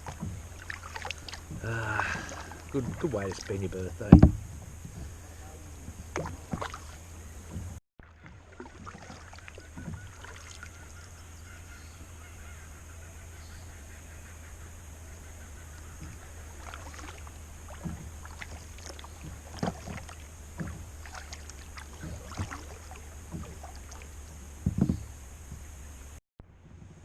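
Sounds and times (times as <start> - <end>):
loud splash or knock: 0.0 - 5.1, 6.1 - 7.7, 16.0 - 25.1
paddle splashing water: 0.0 - 26.2.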